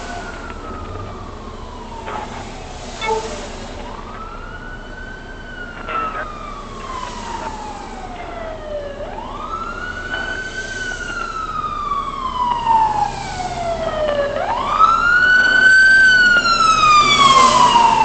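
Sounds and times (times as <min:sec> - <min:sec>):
emergency siren wailing: 0:00.0 - 0:18.0.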